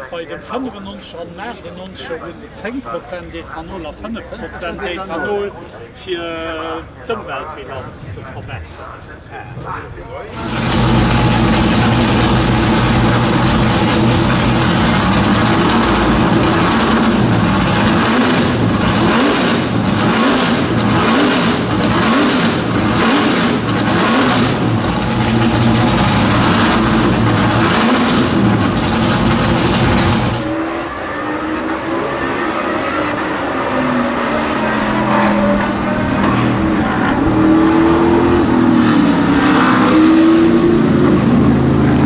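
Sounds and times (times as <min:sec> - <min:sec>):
engine throttle blips: 0:10.3 - 0:30.6
race car engine running rough: 0:10.3 - 0:30.7, 0:31.4 - 0:42.0.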